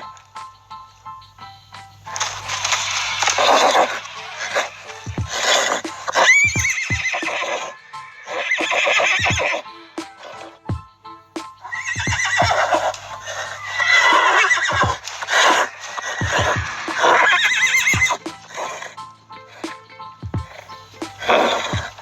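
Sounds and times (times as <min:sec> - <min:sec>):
background music: 0:00.0 - 0:22.0
horse whinnying: 0:03.1 - 0:09.7, 0:11.7 - 0:18.9.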